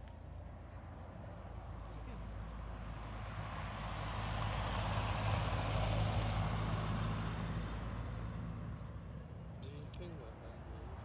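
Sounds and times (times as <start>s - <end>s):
vehicle passing by: 2.6s - 9.4s.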